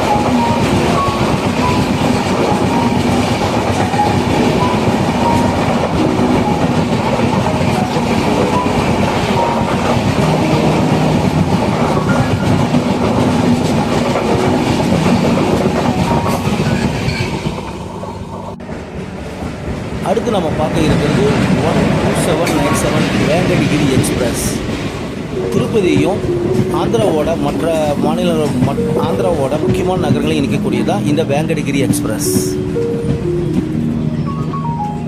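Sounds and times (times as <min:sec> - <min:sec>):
train wheels on rails: 0:00.0 - 0:35.0.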